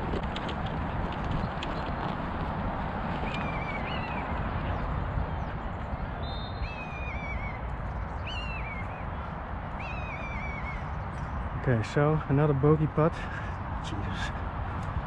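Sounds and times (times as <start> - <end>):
rushing background noise: 0.0 - 15.0
bird calling: 3.2 - 4.8, 6.2 - 11.4.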